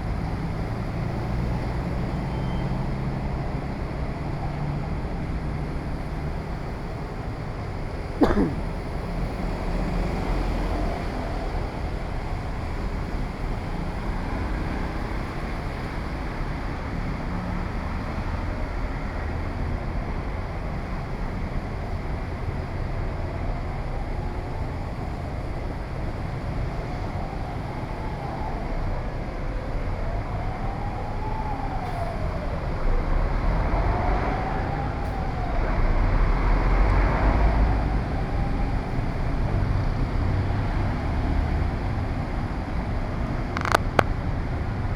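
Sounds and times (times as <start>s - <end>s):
street traffic rumble: 0.0s - 44.9s
siren wailing: 26.6s - 39.7s.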